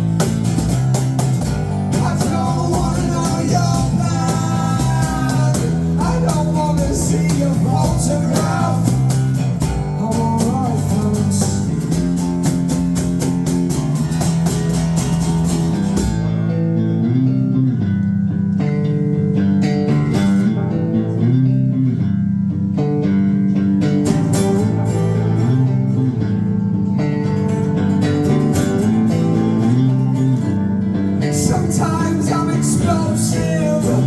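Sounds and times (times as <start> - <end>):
live band playing: 0.0 - 16.8, 23.5 - 34.0
bass guitar line: 0.0 - 34.0
guitars: 0.0 - 34.0.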